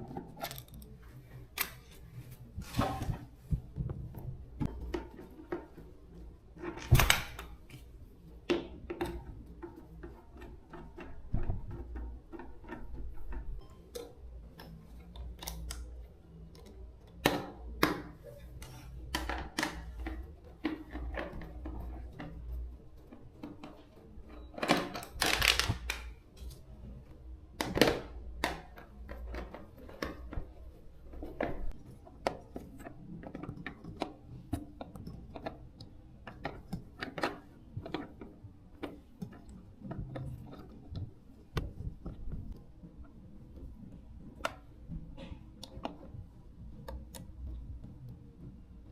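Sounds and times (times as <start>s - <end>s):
clicks of tools and metal parts: 0.1s - 2.0s.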